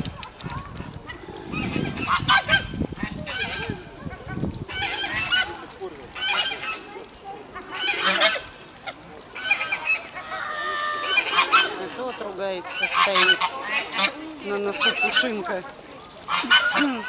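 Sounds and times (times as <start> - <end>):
geese honking: 7.6 - 8.6, 9.3 - 15.6, 16.2 - 17.0.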